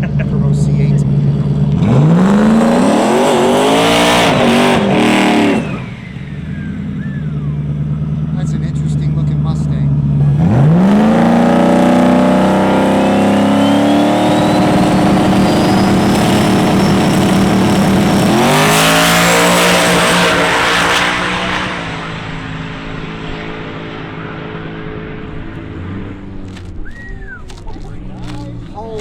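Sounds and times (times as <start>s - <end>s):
drag car engine revving: 0.0s - 29.0s
high whine climbing in pitch: 10.2s - 28.9s.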